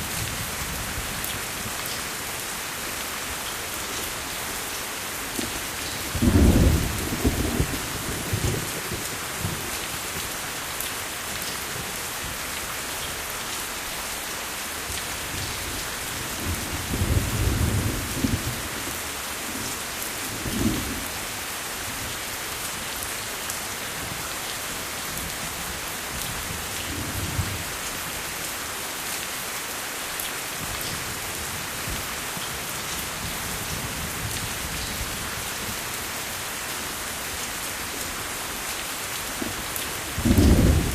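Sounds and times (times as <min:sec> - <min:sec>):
steady rain: 0:00.0 - 0:40.9
thunder rolling: 0:40.2 - 0:40.9.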